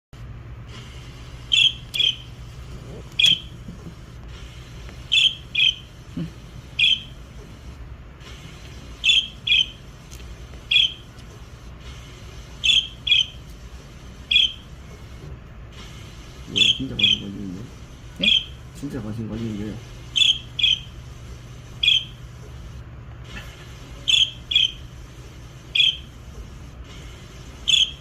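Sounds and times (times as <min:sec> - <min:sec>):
steady low hum: 0:00.2 - 0:28.0
short sharp bird chirps: 0:01.5 - 0:02.2.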